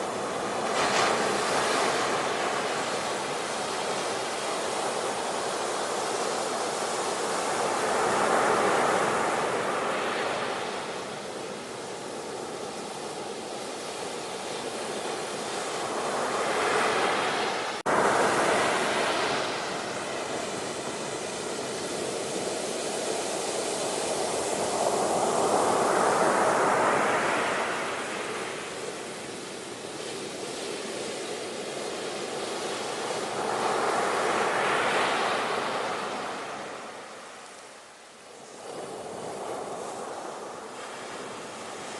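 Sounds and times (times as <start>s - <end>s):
ocean waves breaking: 0.0s - 41.9s.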